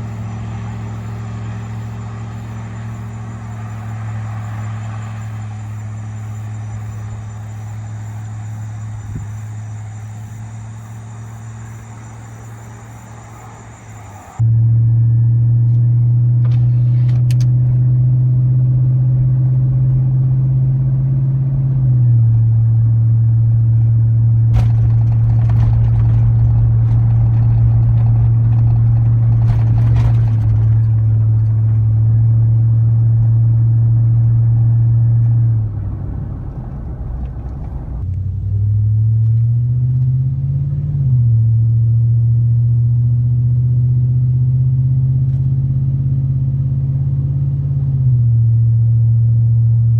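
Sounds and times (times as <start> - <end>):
truck exhaust drone: 0.0 - 49.9.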